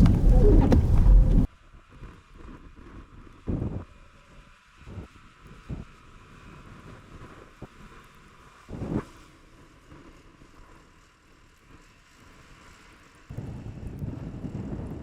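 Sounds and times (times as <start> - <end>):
low wind rumbling: 0.0 - 1.5
wind buffeting microphone: 0.0 - 1.5.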